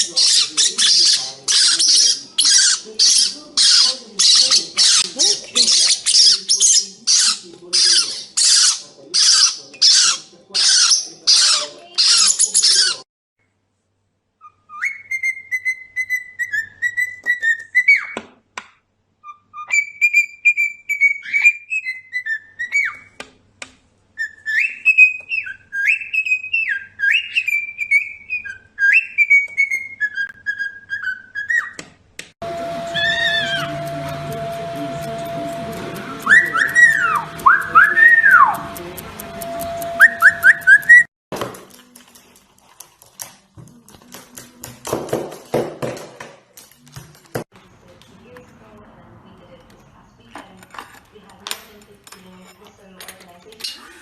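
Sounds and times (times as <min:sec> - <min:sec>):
parrot squawking: 0:00.0 - 0:13.0, 0:32.8 - 0:34.2, 0:36.2 - 0:38.8
parrot whistling sliding notes: 0:32.4 - 0:41.1.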